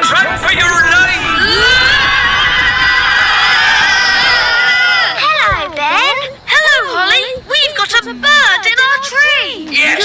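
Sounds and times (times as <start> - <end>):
cartoon crowd screaming: 0.0 - 5.4.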